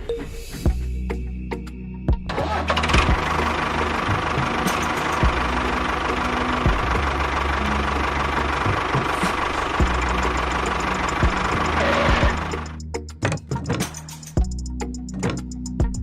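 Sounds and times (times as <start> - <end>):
engine humming: 2.3 - 12.8
engine knocks: 2.4 - 14.0.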